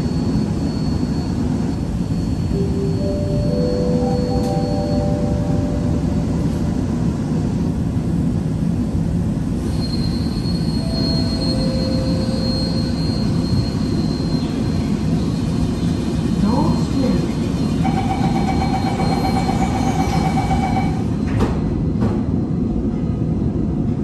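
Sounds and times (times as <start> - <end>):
metro train rumbling in tunnel: 0.0 - 24.0
thin high whine: 9.7 - 15.4.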